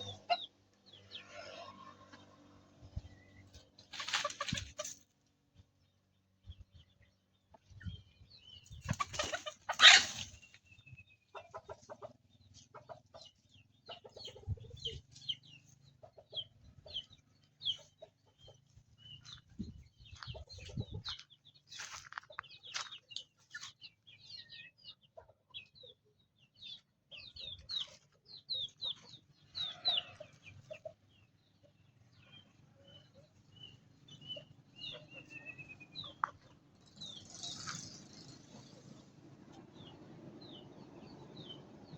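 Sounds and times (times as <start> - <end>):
chickens clucking: 0.0 - 5.6, 6.8 - 40.1
chicks peeping: 6.4 - 37.8.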